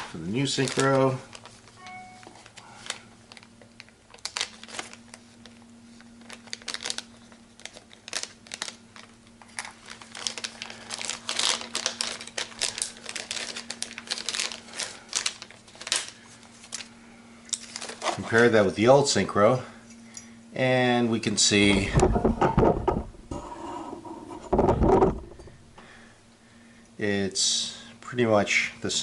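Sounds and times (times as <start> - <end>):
plastic bag crinkling: 0.0 - 18.5
faint steady hum: 0.0 - 29.0.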